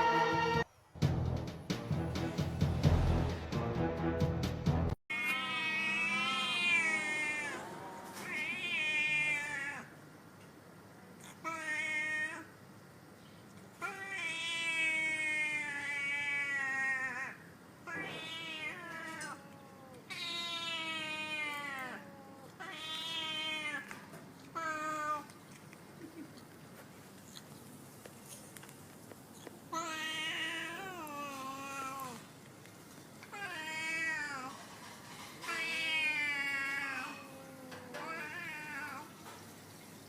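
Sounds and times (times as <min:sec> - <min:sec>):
cat meowing: 0:05.1 - 0:09.9, 0:11.4 - 0:12.5, 0:13.8 - 0:25.4, 0:29.7 - 0:32.2, 0:33.3 - 0:34.6, 0:35.4 - 0:39.1.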